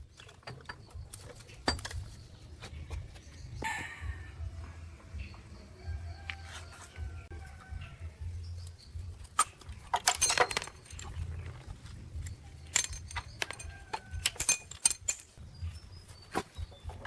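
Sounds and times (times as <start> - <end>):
metal parts clinking: 8.6 - 15.4.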